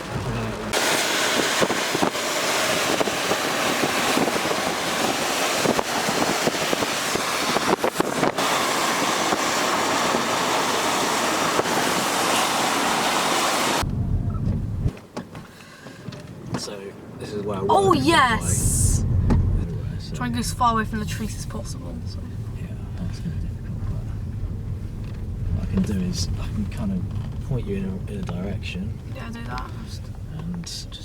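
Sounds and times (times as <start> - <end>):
heavy rain pelting a car: 0.0 - 13.9, 17.7 - 31.0
low rumble: 19.0 - 30.4.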